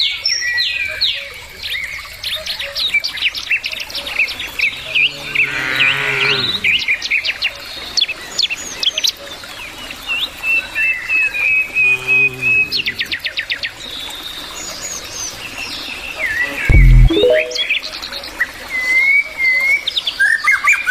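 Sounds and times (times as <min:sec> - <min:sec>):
cattle mooing: 0:04.8 - 0:06.7, 0:11.8 - 0:13.0.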